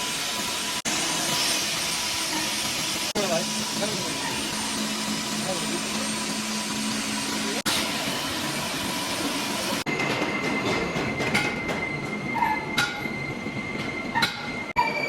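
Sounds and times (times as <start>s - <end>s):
high-pitched metallic machine whine: 9.2s - 15.0s.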